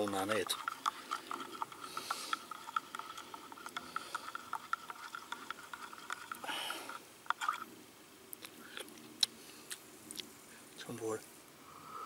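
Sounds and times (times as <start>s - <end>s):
campfire crackling: 0.0s - 11.2s
soft hiss: 6.3s - 12.0s.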